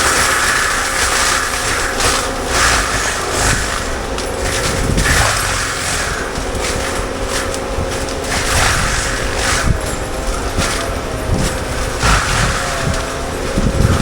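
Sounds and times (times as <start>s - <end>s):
loader engine rumble: 0.0s - 14.0s
mulcher shredding brush: 0.0s - 14.0s.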